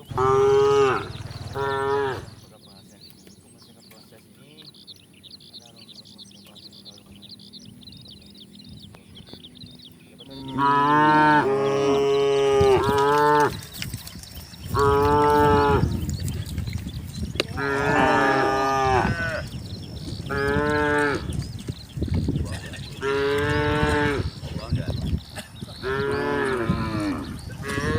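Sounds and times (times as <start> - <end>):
cattle mooing: 0.0 - 2.4, 10.3 - 13.6, 14.7 - 16.0, 17.5 - 19.5, 20.3 - 21.3, 23.0 - 24.4, 25.8 - 27.9.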